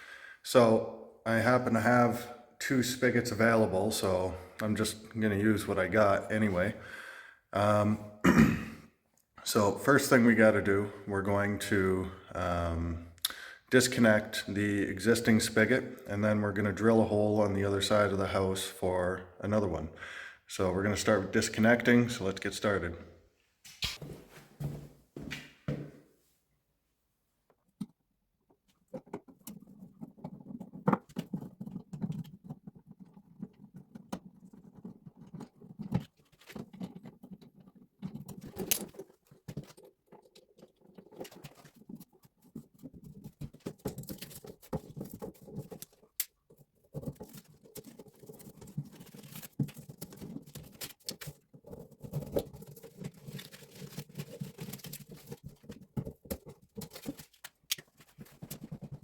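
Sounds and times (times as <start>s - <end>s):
tools clicking and scraping on pipes: 28.7s - 59.0s.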